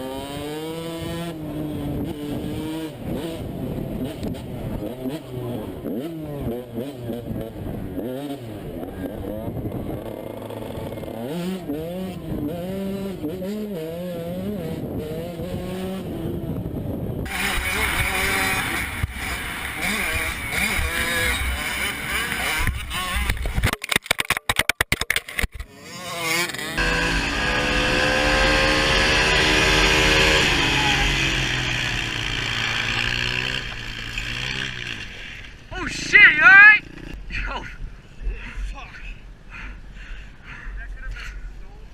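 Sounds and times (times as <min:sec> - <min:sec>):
vehicle engine revving: 0:00.0 - 0:23.6, 0:25.7 - 0:35.6.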